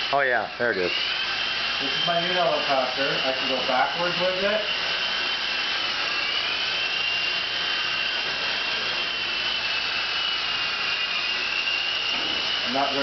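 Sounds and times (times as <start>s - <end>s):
rc helicopter motor whirring: 0.0s - 13.0s.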